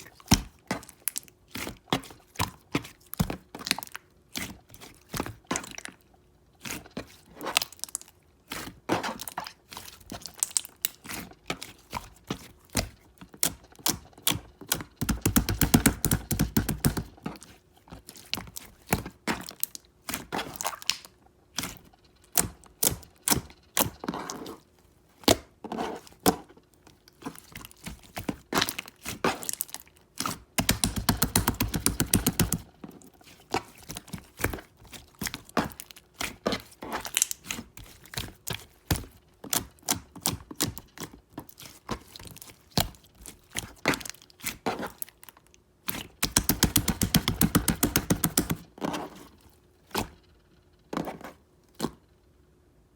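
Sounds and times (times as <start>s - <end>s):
sharp clicks and taps: 15.0s - 17.1s, 30.6s - 32.7s, 46.2s - 48.6s.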